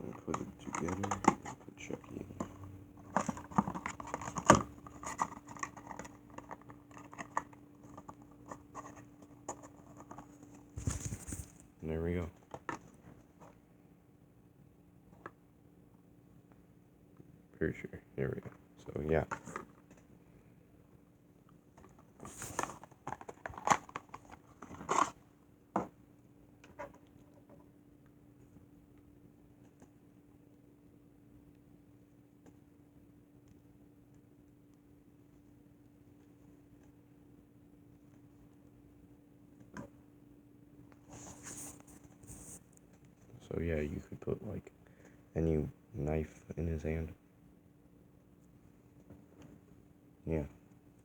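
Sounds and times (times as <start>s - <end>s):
plastic figure and box handled: 0.0s - 11.7s, 21.7s - 25.2s
plastic toy packaging rustling: 0.1s - 1.6s, 3.0s - 11.6s, 21.9s - 25.2s.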